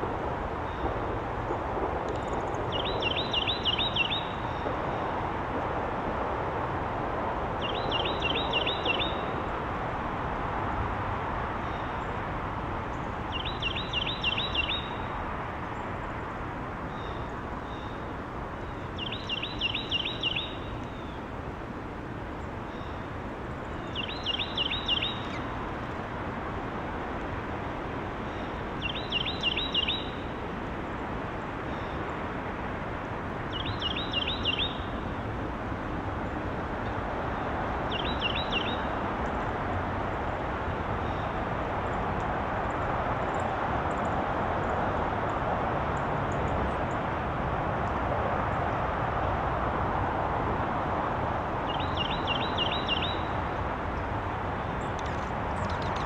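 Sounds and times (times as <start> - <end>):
outdoor background hum: 0.0 - 56.0
songbird singing: 0.5 - 5.7, 7.5 - 9.8, 11.5 - 12.2, 12.8 - 26.3, 27.4 - 32.3, 33.3 - 35.5, 36.2 - 39.6, 40.2 - 44.2, 51.6 - 56.0.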